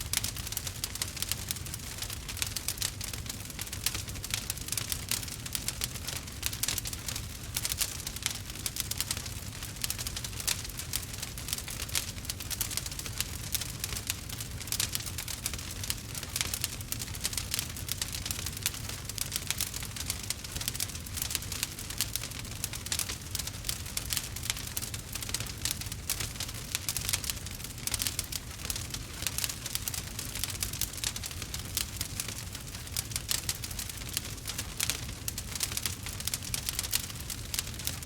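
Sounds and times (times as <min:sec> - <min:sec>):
low fire rumble: 0:00.0 - 0:38.0
wood fire crackling: 0:00.0 - 0:38.0.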